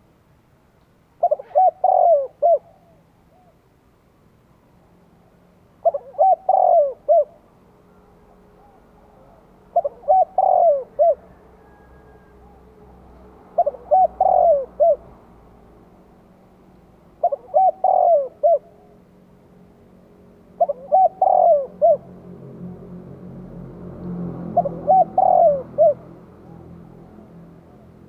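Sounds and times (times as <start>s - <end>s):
dove cooing: 1.2s - 3.6s, 5.8s - 12.9s, 13.5s - 15.2s, 17.1s - 19.0s, 20.6s - 22.8s, 24.4s - 28.0s.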